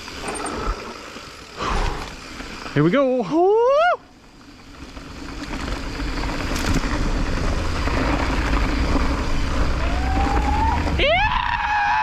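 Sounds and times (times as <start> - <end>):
bike rolling over dirt: 0.0 - 12.0
wind rushing over microphone: 6.0 - 12.0.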